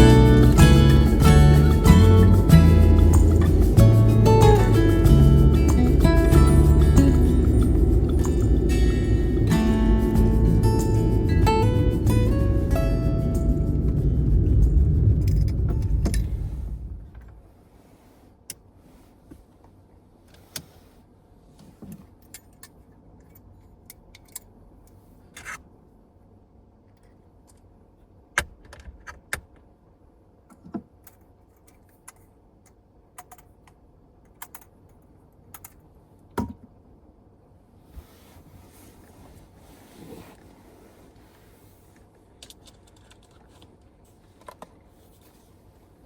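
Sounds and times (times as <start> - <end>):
background music: 0.0 - 14.3.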